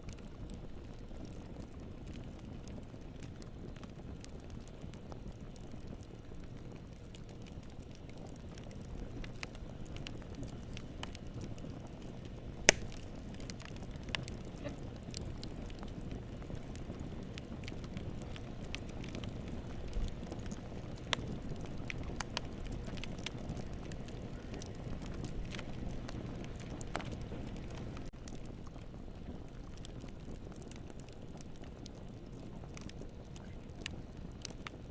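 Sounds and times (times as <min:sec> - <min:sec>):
wood fire crackling: 0:00.0 - 0:34.9
sharp fire pop: 0:12.7 - 0:13.0.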